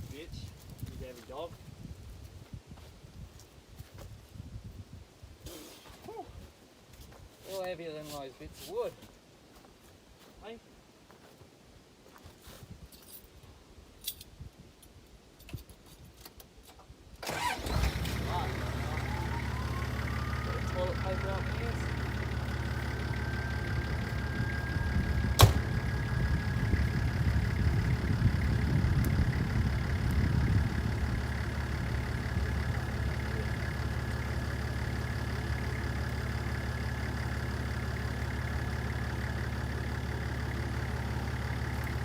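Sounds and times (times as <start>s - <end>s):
engine idling: 17.2s - 42.0s
sharp engine knock: 25.4s - 25.8s.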